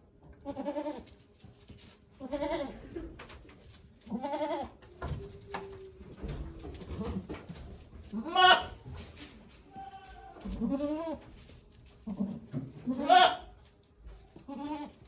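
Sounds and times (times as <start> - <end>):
goat bleating: 0.4 - 1.1, 2.2 - 3.0, 4.1 - 4.8, 8.1 - 8.8, 9.6 - 11.3, 12.0 - 13.6, 14.4 - 15.0.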